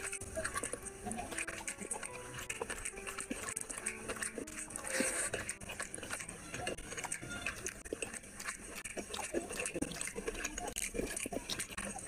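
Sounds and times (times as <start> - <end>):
person chewing and smacking: 0.0 - 12.0.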